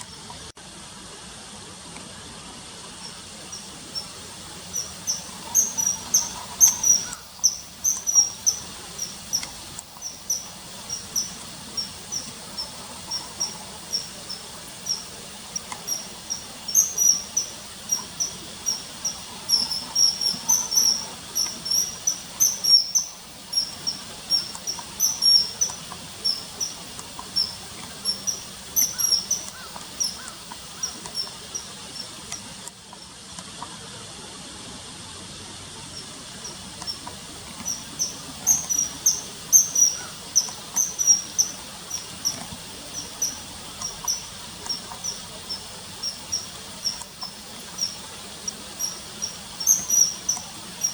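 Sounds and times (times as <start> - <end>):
faint hiss: 0.0 - 50.9.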